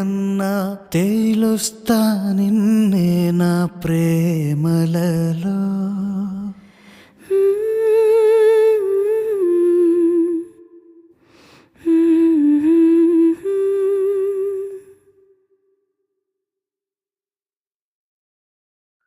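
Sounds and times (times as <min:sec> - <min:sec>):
person humming a melody: 0:07.2 - 0:11.1, 0:11.8 - 0:15.1.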